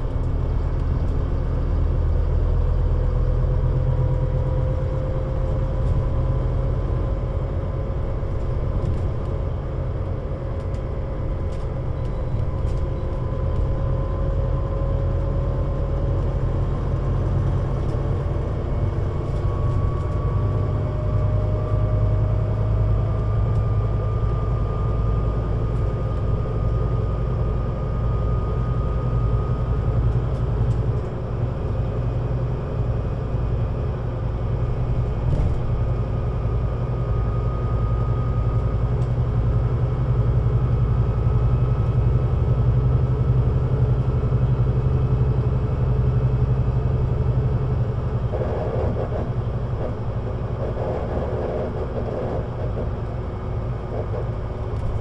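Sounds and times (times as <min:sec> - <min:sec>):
bus engine drone: 0:00.0 - 0:55.0.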